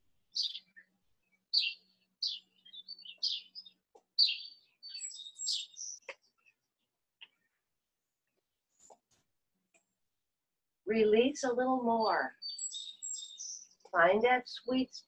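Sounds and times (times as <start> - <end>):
songbird singing: 0.2 - 7.5, 10.9 - 15.0.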